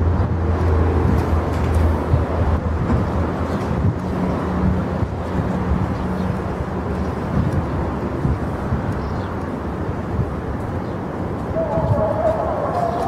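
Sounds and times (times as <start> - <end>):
electric trains rumbling: 0.0 - 13.0
higher hum: 11.4 - 13.0.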